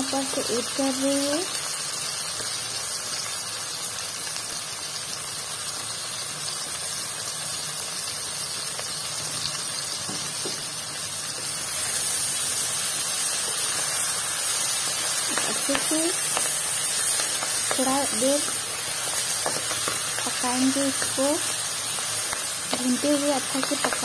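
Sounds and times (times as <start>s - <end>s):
food sizzling in a pan: 0.0s - 24.0s
spatula stirring: 13.4s - 24.0s.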